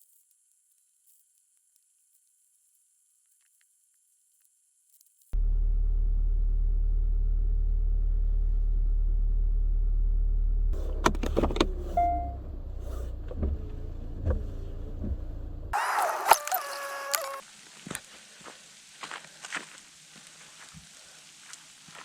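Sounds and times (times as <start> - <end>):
car engine hum: 5.4 - 17.4
short squeaks: 15.8 - 17.4.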